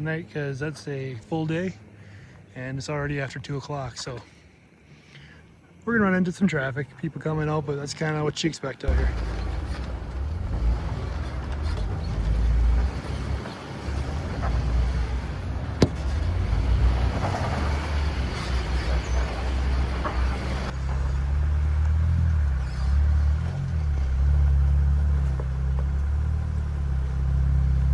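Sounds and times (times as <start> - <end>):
off-road vehicle engine rumbling: 8.8 - 27.9.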